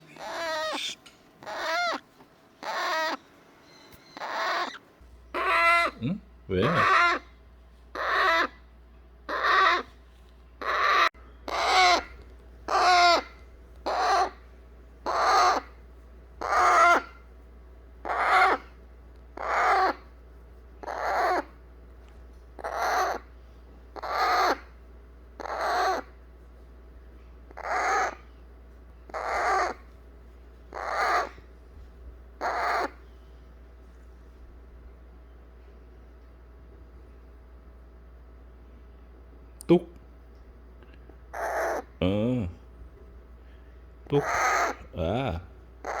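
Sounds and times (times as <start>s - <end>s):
parrot chick rasping calls: 0.0s - 6.0s, 6.6s - 8.7s, 9.3s - 9.9s, 10.6s - 14.4s, 15.0s - 15.8s, 16.4s - 17.3s, 18.0s - 20.1s, 20.8s - 21.6s, 22.6s - 23.3s, 23.9s - 24.8s, 25.4s - 26.2s, 27.5s - 28.3s, 29.0s - 29.9s, 30.7s - 31.5s, 32.4s - 33.2s, 41.2s - 42.0s, 44.1s - 45.0s, 45.8s - 46.0s.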